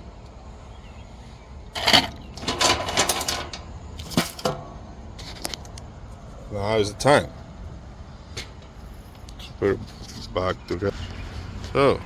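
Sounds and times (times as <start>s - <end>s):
tools and plastic parts clattering: 1.8s - 5.6s.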